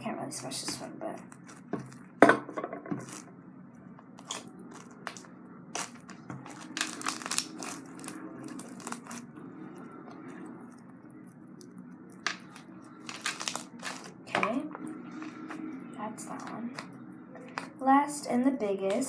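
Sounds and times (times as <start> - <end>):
slime crackling and popping: 4.2 - 14.2.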